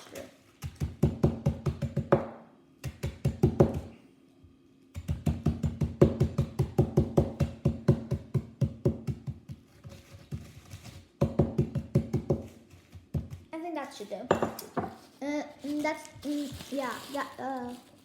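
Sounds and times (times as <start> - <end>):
spoon knocking against a ringing bowl: 14.3 - 14.9.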